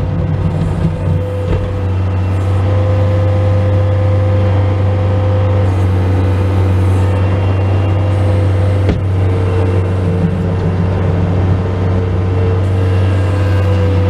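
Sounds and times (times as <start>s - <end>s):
diesel engine running: 0.0s - 14.0s
steady whine: 0.0s - 14.0s.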